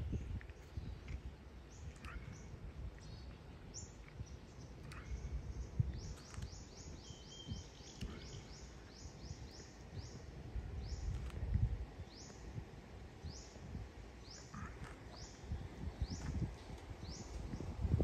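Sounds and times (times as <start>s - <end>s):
bird chirping: 1.7s - 11.3s.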